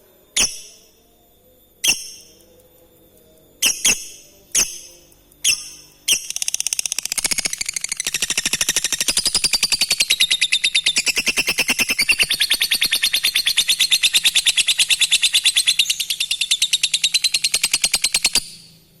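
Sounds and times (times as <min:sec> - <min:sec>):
lovebird chattering: 0:03.6 - 0:18.5.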